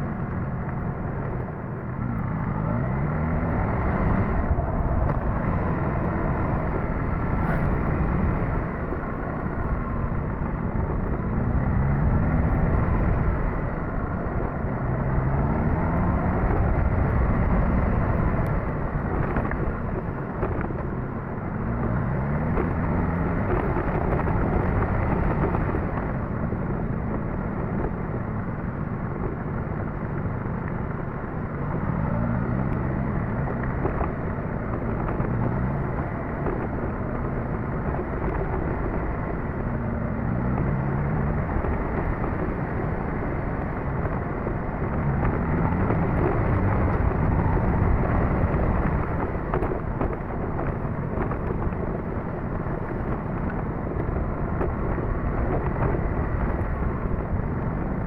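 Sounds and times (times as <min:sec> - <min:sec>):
wind noise: 0:00.0 - 0:58.0
motorcycle engine accelerating: 0:31.5 - 0:58.0.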